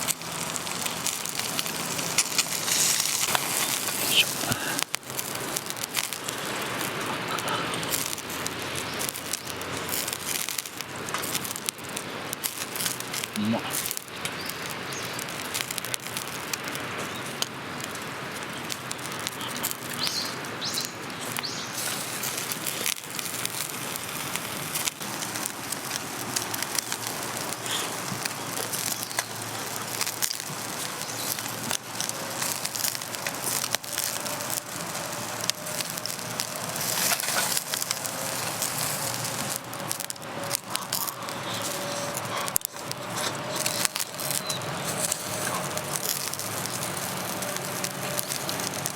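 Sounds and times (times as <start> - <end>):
wood fire crackling and popping: 0.0 - 48.9.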